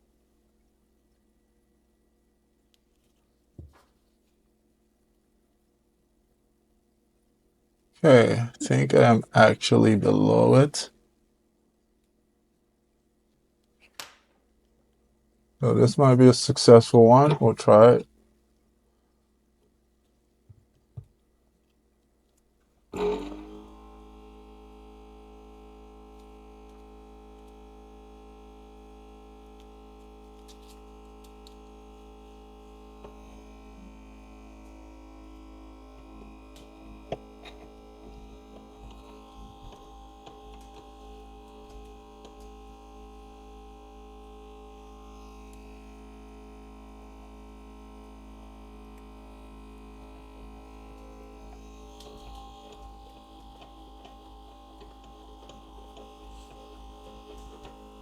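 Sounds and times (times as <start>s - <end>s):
electrical machine hum: 8.0s - 10.9s, 15.6s - 18.0s, 23.0s - 58.0s.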